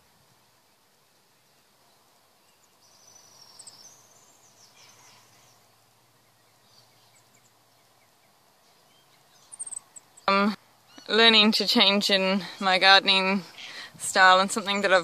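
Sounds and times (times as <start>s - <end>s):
small bird trilling and chirping: 2.5s - 5.7s, 6.3s - 11.3s.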